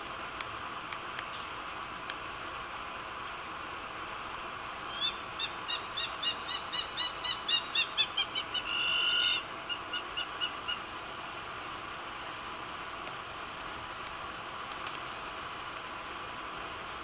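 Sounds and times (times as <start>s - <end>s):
background hiss: 0.0s - 17.0s
bird whistling call: 4.8s - 10.8s.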